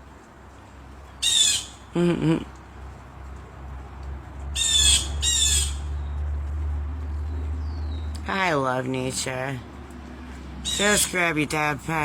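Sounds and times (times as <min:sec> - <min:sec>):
bird squawking: 0:01.2 - 0:01.9, 0:04.6 - 0:05.9, 0:10.6 - 0:11.1.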